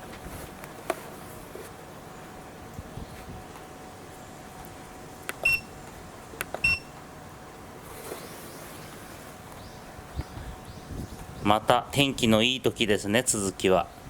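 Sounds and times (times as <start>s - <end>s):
short electronic beeps: 5.4s - 5.7s, 6.6s - 6.9s.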